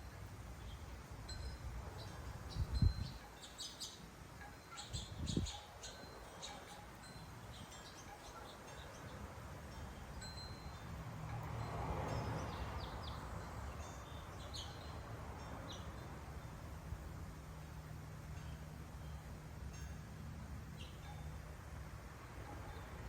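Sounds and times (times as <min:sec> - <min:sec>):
small birds chirping: 0:00.6 - 0:09.4, 0:12.2 - 0:16.7, 0:20.6 - 0:21.4
wind chime ringing: 0:01.2 - 0:21.5.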